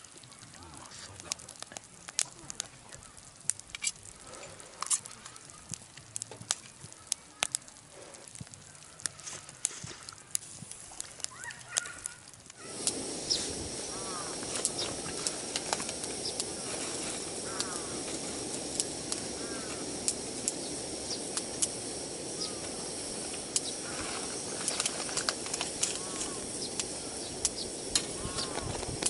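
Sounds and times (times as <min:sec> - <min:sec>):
sharp crackles and clicks: 0:00.0 - 0:29.0
steady hiss: 0:00.0 - 0:29.0
birds chirping: 0:11.3 - 0:29.0.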